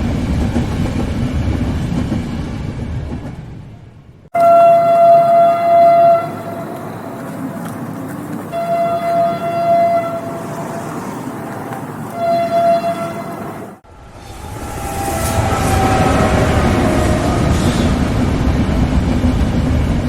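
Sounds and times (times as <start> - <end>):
moving train rumble: 0.0 - 20.0
train horn blasts: 4.3 - 7.0, 8.5 - 11.0, 12.1 - 13.4, 14.3 - 18.0.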